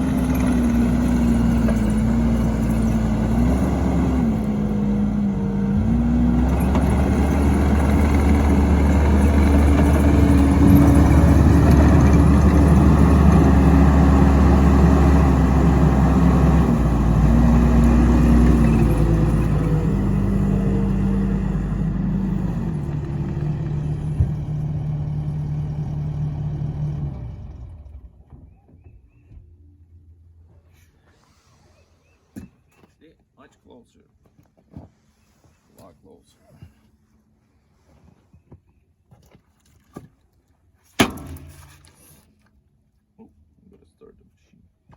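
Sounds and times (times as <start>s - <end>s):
machine engine running: 0.0s - 28.2s.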